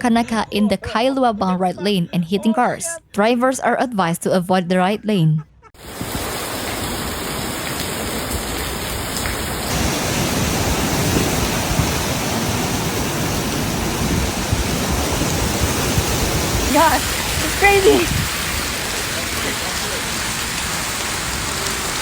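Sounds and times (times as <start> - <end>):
heavy rain pouring: 5.8 - 22.0.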